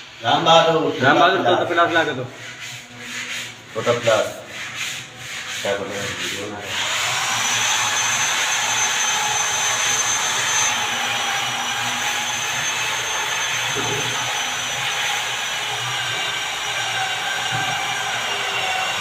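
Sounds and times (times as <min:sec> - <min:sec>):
electric power tool whining: 0:06.7 - 0:19.0.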